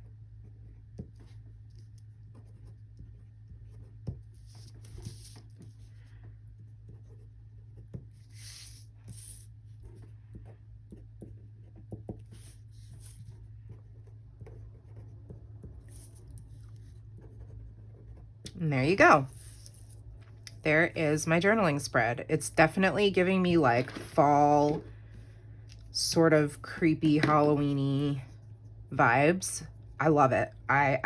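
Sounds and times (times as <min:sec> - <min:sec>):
steady low hum: 0:00.0 - 0:31.0
pen scratching on paper: 0:00.6 - 0:06.0, 0:06.6 - 0:20.0.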